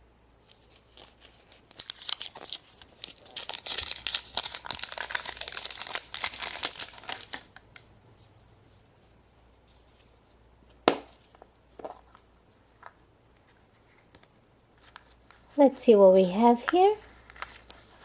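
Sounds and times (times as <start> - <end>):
plastic wrapping crinkling and tearing: 0.5 - 7.9.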